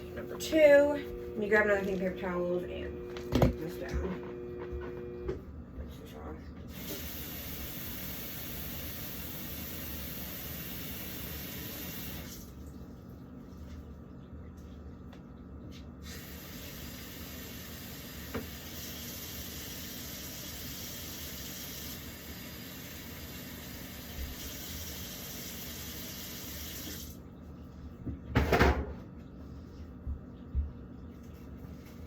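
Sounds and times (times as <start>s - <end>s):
tap running into sink: 18.3s - 18.6s.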